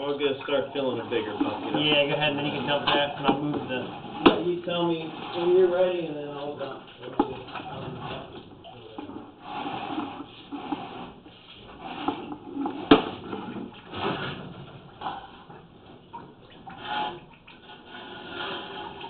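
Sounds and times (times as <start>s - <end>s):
water running and splashing: 0.0s - 13.9s.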